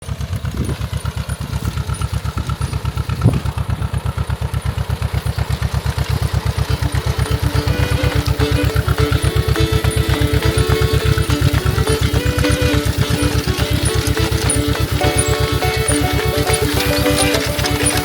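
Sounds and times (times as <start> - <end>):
engine knock: 0.0 - 18.0
old tractor engine popping: 0.0 - 18.0
music: 6.8 - 18.0.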